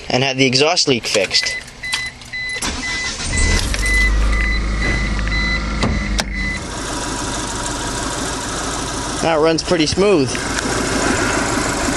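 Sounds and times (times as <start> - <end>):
car warning chime beeping: 1.3 - 6.7
car engine idling: 1.6 - 11.9.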